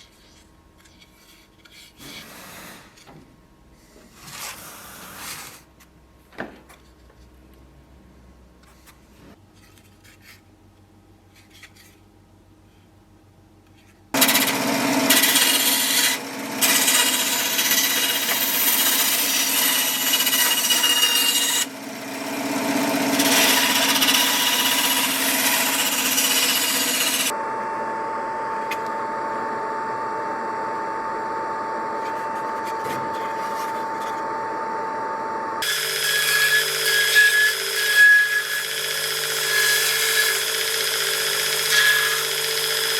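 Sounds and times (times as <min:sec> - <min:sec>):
power tool rasping: 0:14.2 - 0:27.3, 0:35.6 - 0:42.9
loud tool sound: 0:14.2 - 0:29.9, 0:35.6 - 0:42.9
power tool whine: 0:14.2 - 0:42.9.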